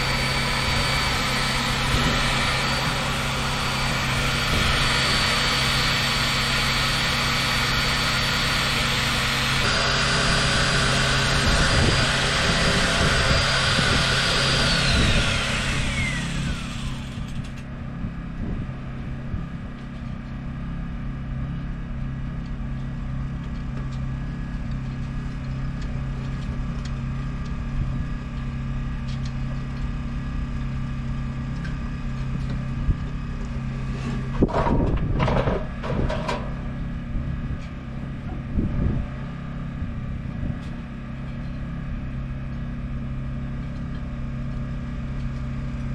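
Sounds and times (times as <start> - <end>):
high whine falling in pitch: 0.0 - 17.4
knocks and clatters: 34.4 - 36.6.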